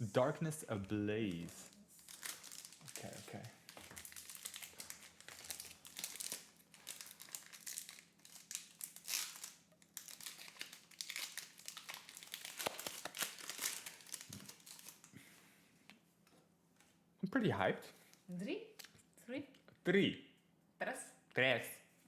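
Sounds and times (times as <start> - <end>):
foil wrapper crinkling: 0.2 - 15.1.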